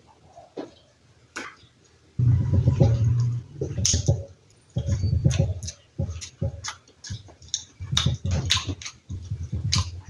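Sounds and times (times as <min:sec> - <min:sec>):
person chewing food: 0:03.2 - 0:10.0
mouth clicks and lip smacks: 0:03.8 - 0:10.0.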